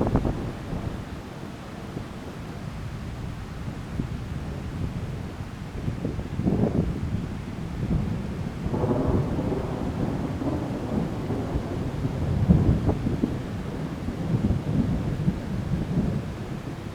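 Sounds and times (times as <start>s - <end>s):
thunder rumbling: 0.0s - 1.2s, 7.8s - 16.8s
steady rain: 0.0s - 16.9s.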